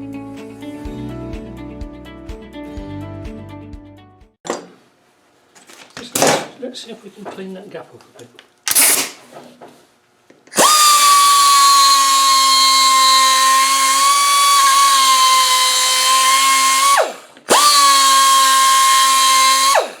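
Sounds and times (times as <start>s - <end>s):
electric power tool whining: 10.5s - 20.0s.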